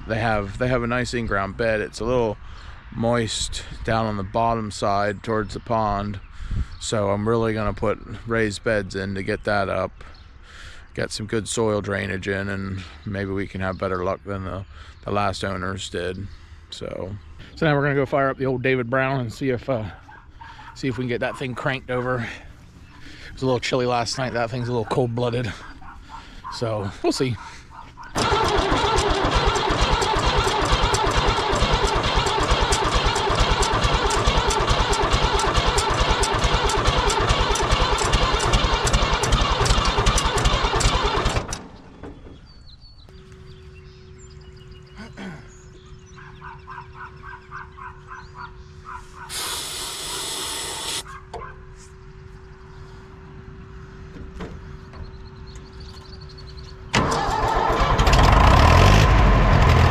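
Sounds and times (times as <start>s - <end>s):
tractor engine cranking: 28.1s - 42.6s, 49.3s - 51.0s, 56.9s - 59.9s.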